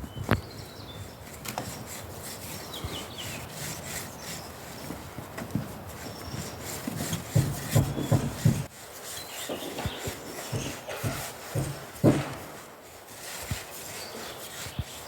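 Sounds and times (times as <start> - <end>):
bricks scraping and knocking: 1.6 - 8.7, 9.4 - 12.6.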